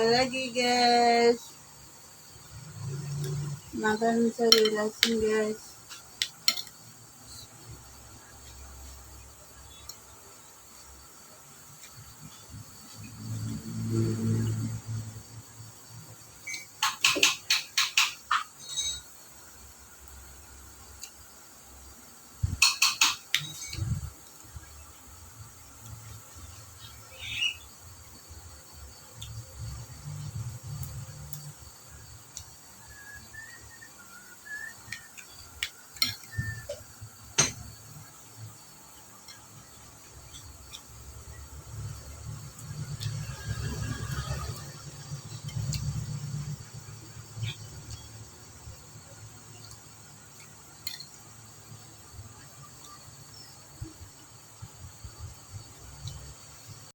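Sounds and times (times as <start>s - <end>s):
faint chirps: 0.0s - 56.9s
faint steady hiss: 0.0s - 56.9s
low chewing noise: 38.0s - 48.6s.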